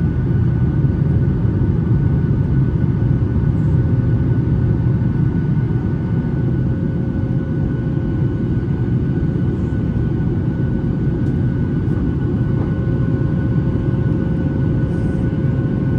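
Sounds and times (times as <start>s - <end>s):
airplane cabin engine rumble: 0.0s - 15.9s.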